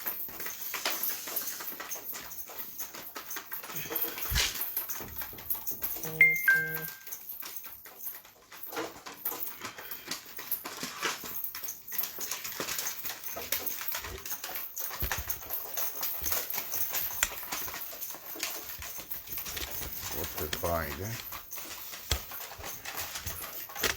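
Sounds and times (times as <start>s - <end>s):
pigeons rustling and scratching: 0.0s - 6.0s, 7.2s - 23.9s.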